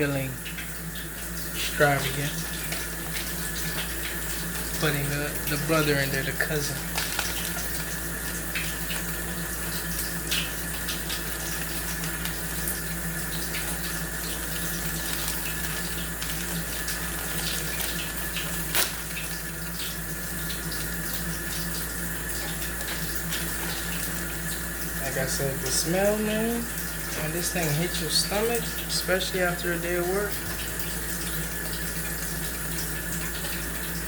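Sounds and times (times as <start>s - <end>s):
food sizzling in a pan: 6.2s - 19.8s.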